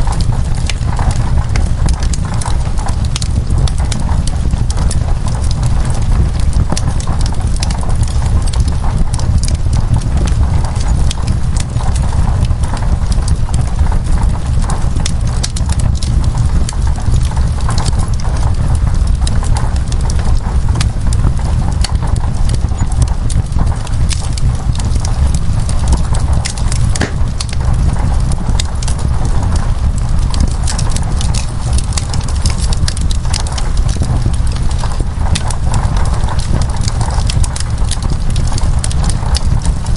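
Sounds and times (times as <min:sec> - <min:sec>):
rain on window glass: 0:00.0 - 0:39.9
wood fire crackling and popping: 0:00.0 - 0:39.9
deep rumble: 0:20.1 - 0:39.1.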